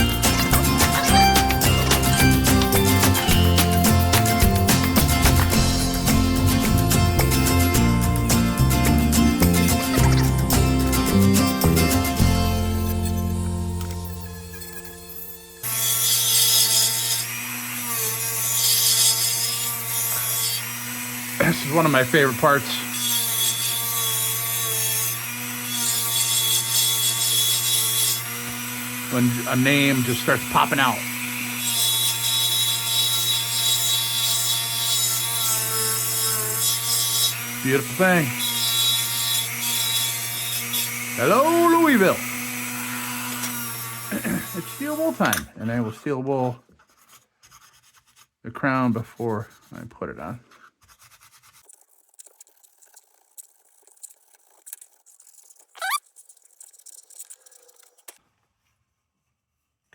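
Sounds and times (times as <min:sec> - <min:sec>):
power tool motor humming: 0:00.0 - 0:45.5, 0:55.8 - 0:56.0
short rising squeak: 0:55.7 - 0:57.9.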